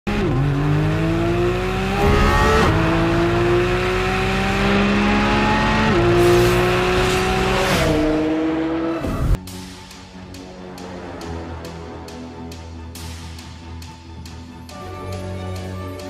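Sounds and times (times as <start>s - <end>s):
car engine accelerating through gears: 0.1s - 9.4s.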